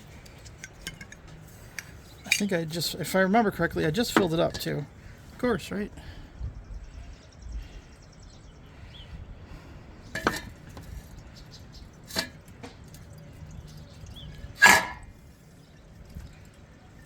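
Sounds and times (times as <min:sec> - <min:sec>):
metal tools clinking: 0:00.1 - 0:02.8.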